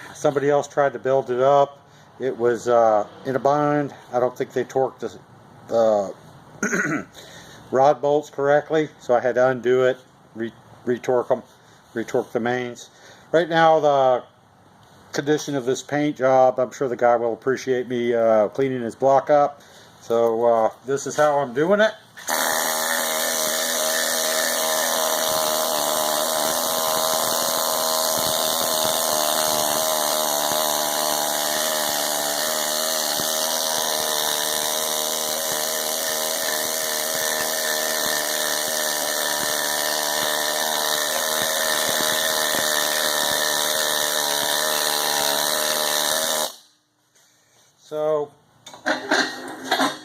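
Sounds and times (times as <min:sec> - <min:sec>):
power tool stripping paint: 0:22.2 - 0:46.6.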